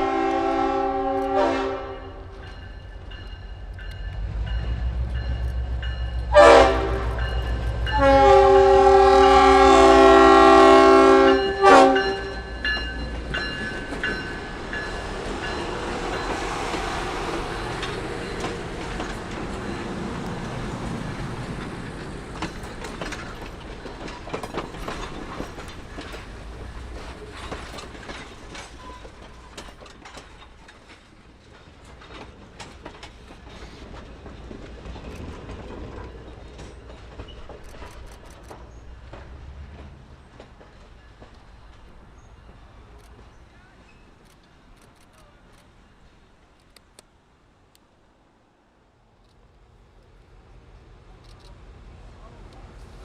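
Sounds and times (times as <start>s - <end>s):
train horn blasts: 0.0s - 2.5s, 6.2s - 12.8s
train rumble and wheel clatter: 0.0s - 53.0s.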